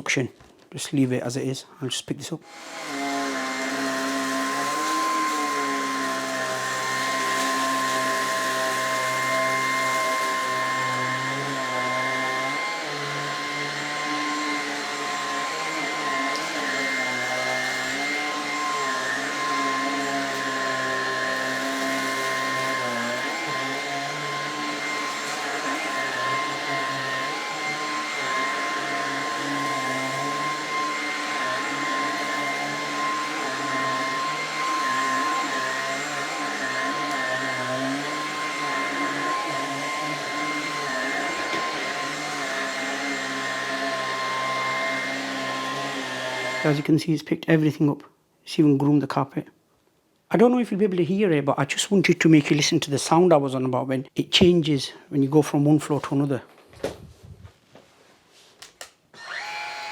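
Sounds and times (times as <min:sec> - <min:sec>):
vacuum cleaner whine: 0:02.4 - 0:46.9, 0:58.8 - 0:59.9.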